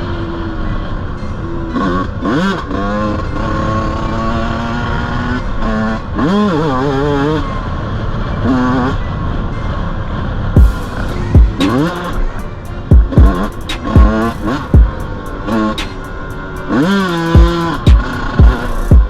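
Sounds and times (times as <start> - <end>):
motorcycle engine revving: 1.4 - 7.6, 10.6 - 19.0.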